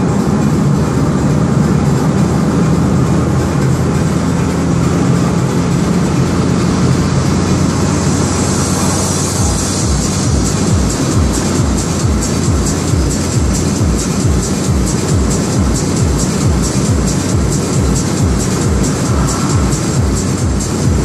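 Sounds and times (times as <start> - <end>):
car engine and road noise: 0.0 - 21.0
music with a beat: 0.0 - 21.0.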